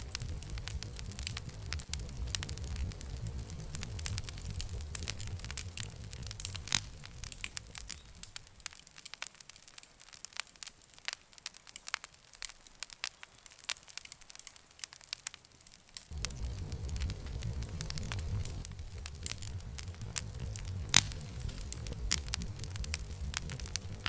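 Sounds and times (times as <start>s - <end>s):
low rumble: 0.0s - 8.4s, 16.1s - 24.0s
campfire crackling and popping: 0.0s - 24.0s.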